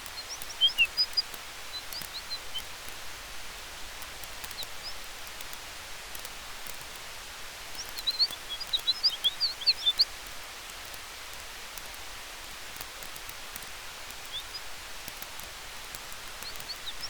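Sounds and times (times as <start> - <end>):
bird chirping: 0.0 - 2.7, 4.5 - 5.1, 7.7 - 10.2, 14.1 - 14.7, 16.3 - 17.0
campfire hissing and crackling: 0.0 - 17.0.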